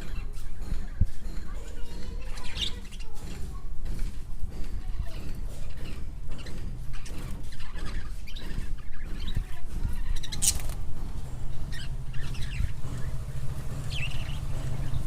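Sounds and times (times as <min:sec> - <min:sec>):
bird chirping: 0:00.0 - 0:03.6, 0:04.8 - 0:15.0
steady low rumble: 0:09.4 - 0:15.0.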